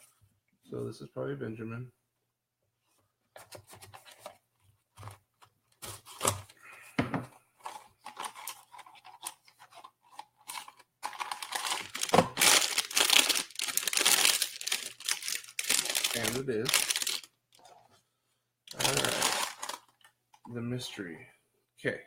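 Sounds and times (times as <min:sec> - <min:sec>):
packaging tearing and crinkling: 0:10.4 - 0:17.3, 0:18.7 - 0:20.0.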